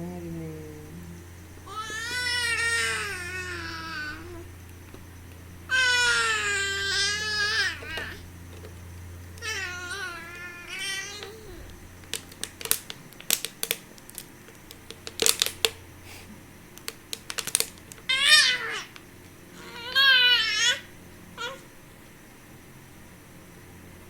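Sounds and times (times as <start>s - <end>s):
baby squealing and cooing: 1.7s - 4.5s, 5.7s - 8.2s, 19.6s - 21.6s.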